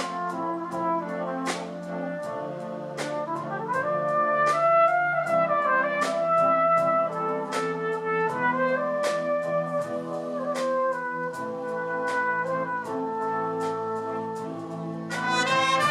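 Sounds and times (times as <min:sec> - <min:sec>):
brass chords: 0:00.0 - 0:15.9
percussion strikes: 0:15.1 - 0:15.9.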